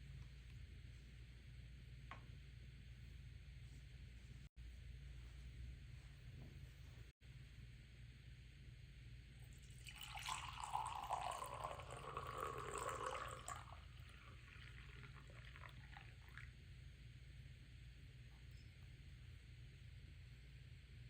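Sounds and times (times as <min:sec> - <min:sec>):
faint low hum: 0:00.0 - 0:21.0
water running: 0:09.6 - 0:16.6.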